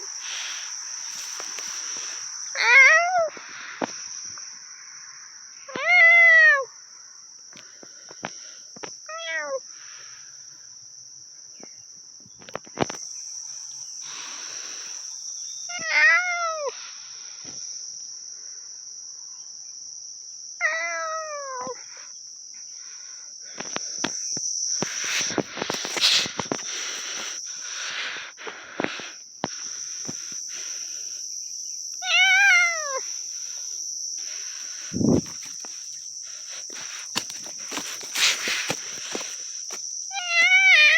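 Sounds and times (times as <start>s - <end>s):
crickets chirring: 0.0s - 40.9s
rustling and handling noise: 0.4s - 2.2s, 34.6s - 40.6s
cat meowing: 2.6s - 3.3s, 5.7s - 6.7s, 9.1s - 9.6s, 15.7s - 16.7s, 20.6s - 21.8s, 32.0s - 33.0s, 40.1s - 40.9s.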